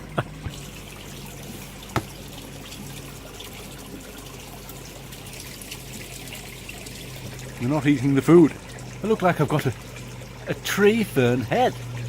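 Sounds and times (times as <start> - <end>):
water trickling into pond: 0.0 - 12.0
sharp tap: 2.0 - 2.2.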